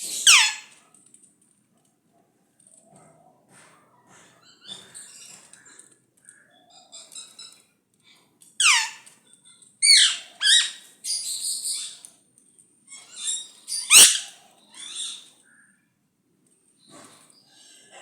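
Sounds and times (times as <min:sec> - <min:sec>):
parakeet screeching and squawking: 0:00.0 - 0:00.8, 0:08.6 - 0:09.0, 0:09.8 - 0:12.0, 0:13.0 - 0:15.2.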